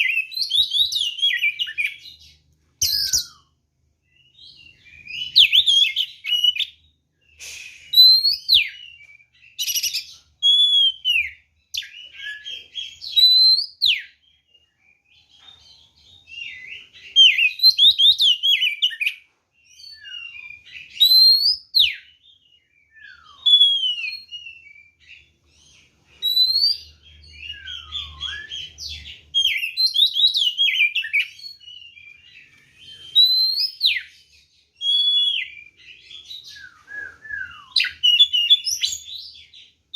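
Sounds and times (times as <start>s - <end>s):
bird singing whistled notes and chatter: 0.0s - 39.9s.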